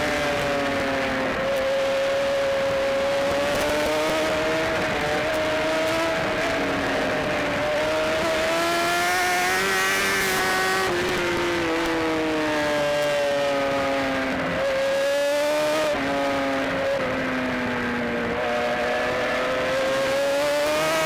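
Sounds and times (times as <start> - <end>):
motorcycle engine at high revs: 0.0 - 21.0.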